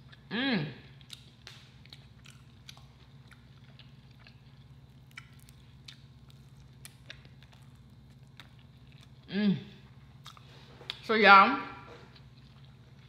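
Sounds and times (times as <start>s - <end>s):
chewing fried chicken: 0.0s - 11.1s, 11.9s - 13.0s
faint low hum: 0.0s - 13.0s.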